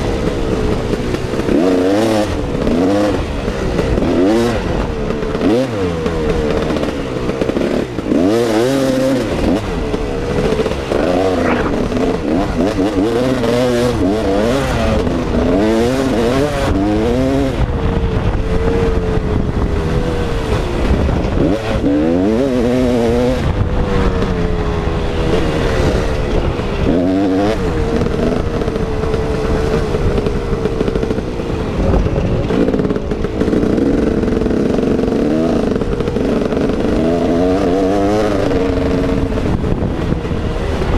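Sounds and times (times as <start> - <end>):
two-stroke motorcycle engine revving: 0.0 - 40.9
steady rush of noise: 9.9 - 13.0.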